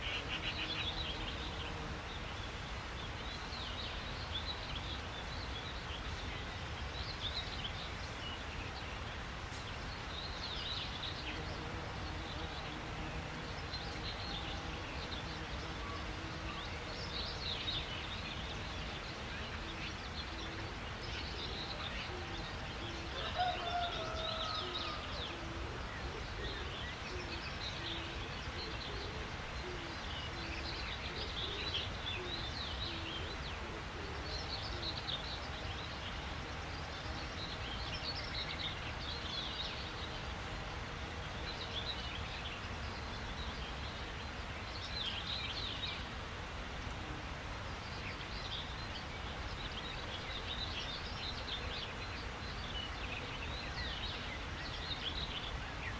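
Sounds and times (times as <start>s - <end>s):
wild birds chirping: 0.0s - 55.9s.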